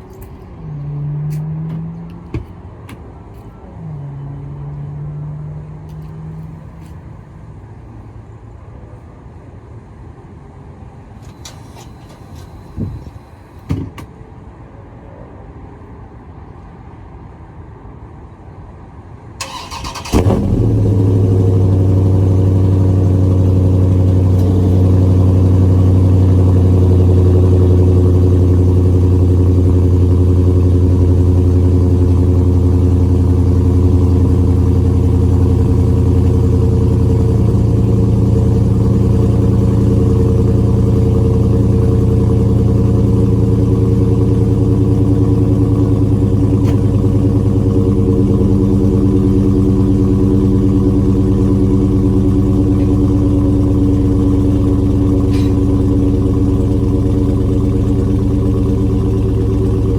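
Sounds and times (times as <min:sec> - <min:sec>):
car engine firing and idling: 0:19.4 - 0:59.9.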